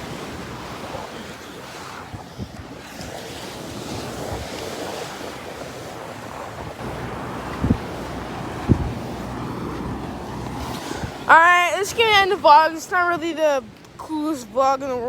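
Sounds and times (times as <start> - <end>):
ocean surf washing on beach: 0.0 - 15.0
wind buffeting microphone: 0.0 - 15.0.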